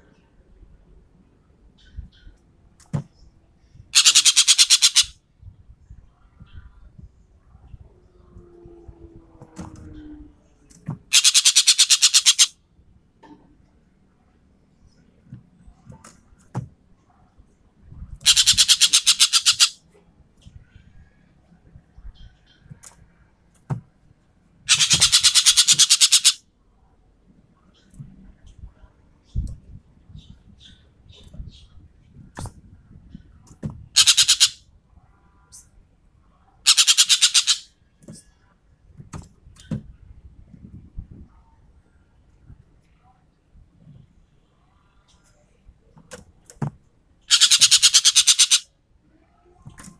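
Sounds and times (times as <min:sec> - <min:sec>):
bird clicks and chips: 0:04.0 - 0:05.1, 0:11.1 - 0:12.5, 0:18.3 - 0:19.8, 0:24.7 - 0:26.4, 0:36.7 - 0:37.6, 0:47.3 - 0:48.6
bird harsh rattle call: 0:04.0 - 0:05.2, 0:11.1 - 0:12.5, 0:18.2 - 0:19.8, 0:24.7 - 0:26.4, 0:34.0 - 0:34.6, 0:36.7 - 0:37.7, 0:47.3 - 0:48.7.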